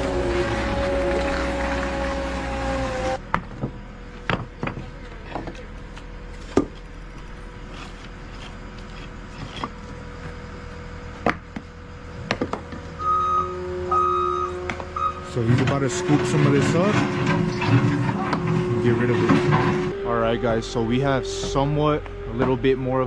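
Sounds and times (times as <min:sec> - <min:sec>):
idling machine hum: 0:00.0 - 0:23.0
backup alarm beeping: 0:13.0 - 0:15.4
demolition knocks and clunks: 0:15.5 - 0:19.9.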